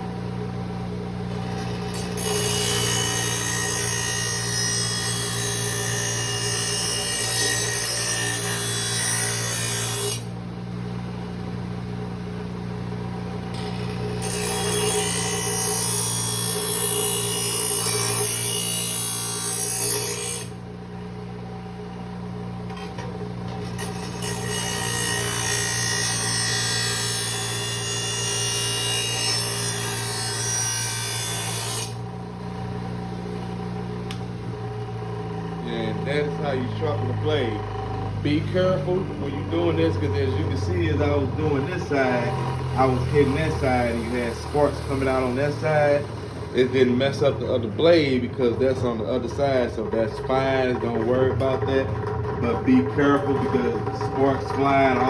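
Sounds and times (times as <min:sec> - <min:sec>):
grinder motor hum: 0:00.0 - 0:55.0.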